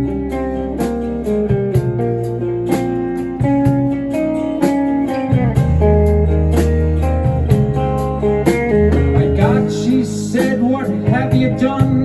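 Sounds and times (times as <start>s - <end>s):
deep bass line: 0.0s - 12.0s
electric guitar: 0.0s - 12.0s
live rock band playing: 0.0s - 12.0s.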